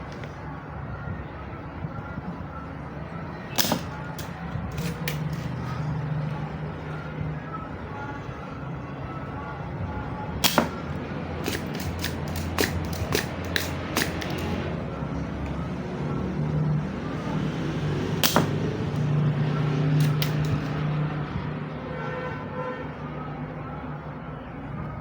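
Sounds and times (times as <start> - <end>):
hand tools clicking and tapping: 3.6 - 5.6, 10.4 - 14.6, 18.2 - 18.6, 20.0 - 20.8.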